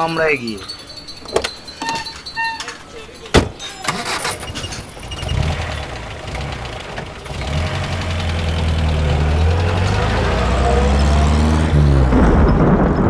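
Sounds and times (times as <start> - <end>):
vehicle engine idling: 3.8 - 12.2.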